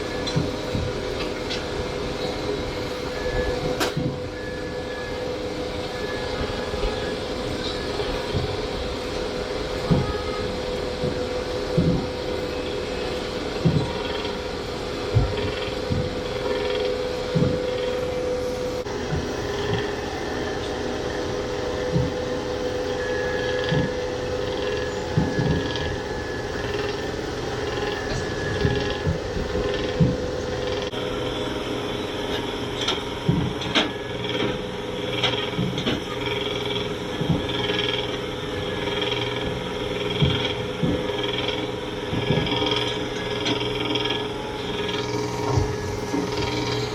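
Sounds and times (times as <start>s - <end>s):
boat engine droning: 0.0s - 46.9s
knocks and creaks: 7.6s - 18.2s, 19.0s - 20.0s, 21.8s - 31.0s, 32.3s - 46.9s.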